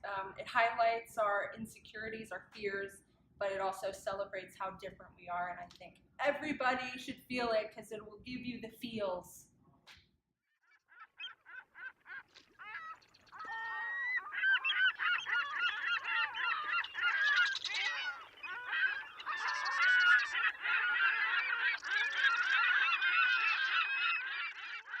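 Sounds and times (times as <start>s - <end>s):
flock of birds calling: 10.6s - 25.0s.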